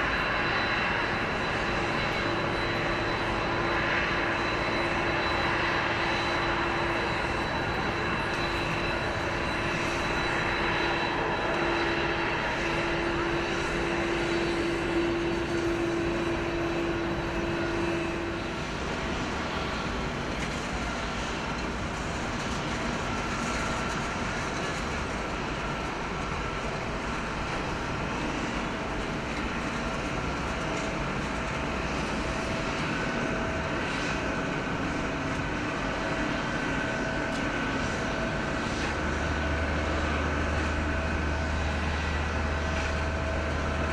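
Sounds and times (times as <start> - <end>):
jet engines running: 0.0 - 43.9.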